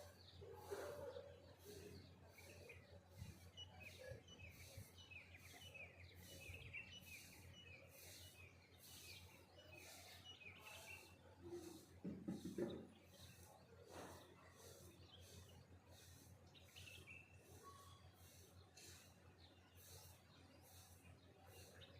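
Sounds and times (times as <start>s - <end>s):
songbirds chirping: 0.0s - 21.9s.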